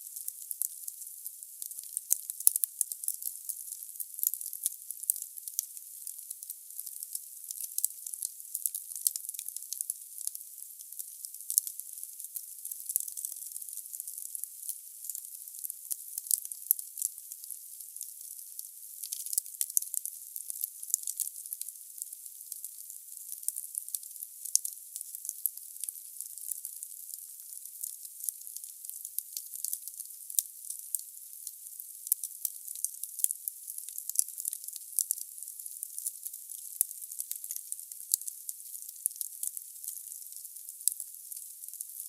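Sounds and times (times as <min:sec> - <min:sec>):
fireplace fire crackling: 0:00.6 - 0:00.8, 0:24.5 - 0:25.2, 0:32.8 - 0:33.3, 0:37.5 - 0:41.0.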